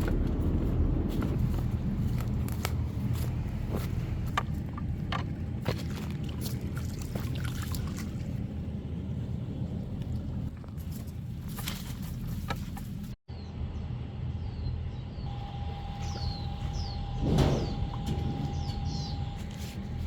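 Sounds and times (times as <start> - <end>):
low rumble: 0.0 - 20.0
birds chirping: 12.1 - 20.0.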